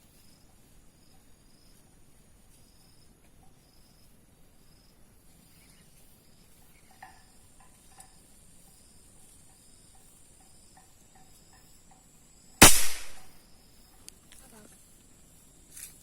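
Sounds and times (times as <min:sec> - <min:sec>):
crickets chirping: 0:00.0 - 0:16.0
air rifle shot: 0:12.6 - 0:13.3.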